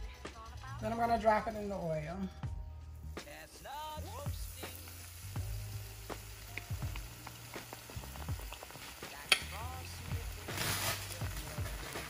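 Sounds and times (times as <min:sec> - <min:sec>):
deep-frying sizzle: 0:01.1 - 0:12.0
oil crackles and pops: 0:03.0 - 0:12.0.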